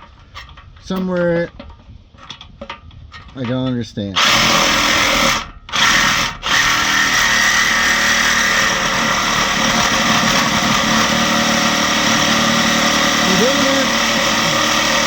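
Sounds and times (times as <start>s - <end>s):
power saw cutting steel pipe: 4.2s - 15.0s.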